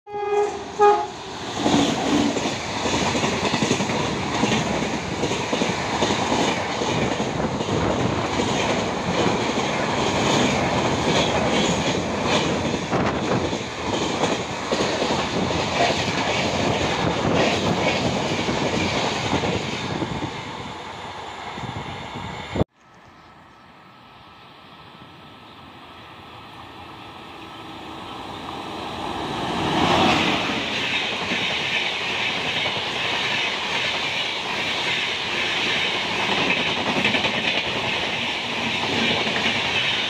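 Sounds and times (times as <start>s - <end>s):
train horn: 0.1s - 1.2s.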